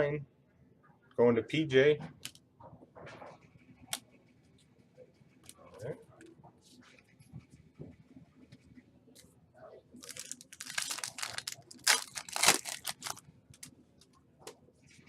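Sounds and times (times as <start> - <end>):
foil wrapper tearing and crinkling: 10.0 - 13.7.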